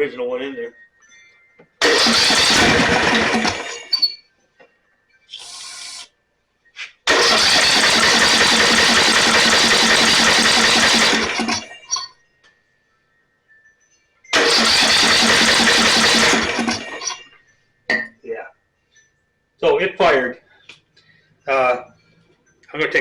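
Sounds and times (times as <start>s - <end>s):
electric starter cranking engine: 1.8s - 4.1s, 7.1s - 11.8s, 14.3s - 17.2s
short hiss: 5.3s - 6.1s.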